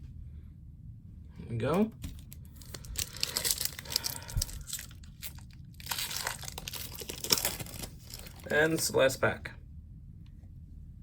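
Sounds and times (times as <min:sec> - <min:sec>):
wrapper crinkling and tearing: 0:02.0 - 0:09.0.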